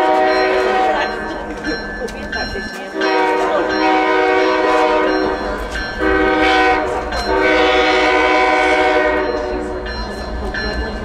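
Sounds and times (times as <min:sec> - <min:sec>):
train air horn blasts: 0:00.0 - 0:01.1, 0:03.0 - 0:05.4, 0:06.0 - 0:09.8
low train rumble: 0:00.0 - 0:11.0.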